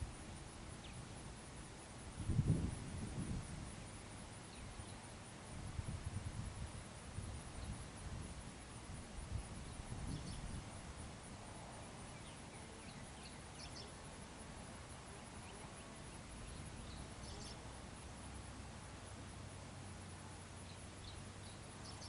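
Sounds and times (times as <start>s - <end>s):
faint bird chirps: 12.1s - 14.0s, 15.3s - 17.6s, 20.6s - 22.0s.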